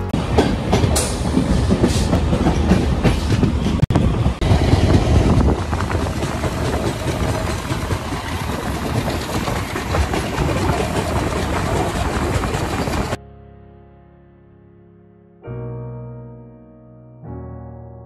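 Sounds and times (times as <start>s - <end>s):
train wheels clattering over rails: 0.2s - 13.2s.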